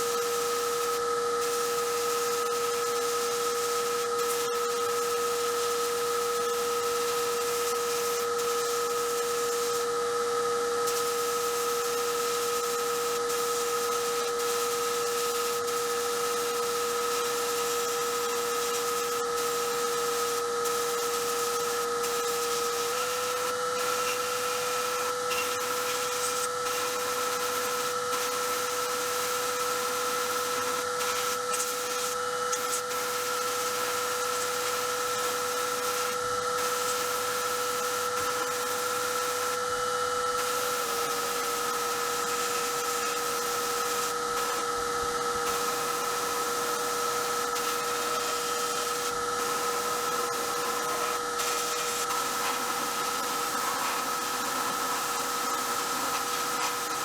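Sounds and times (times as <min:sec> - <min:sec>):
motor-driven tool whining: 0:21.2 - 0:57.0.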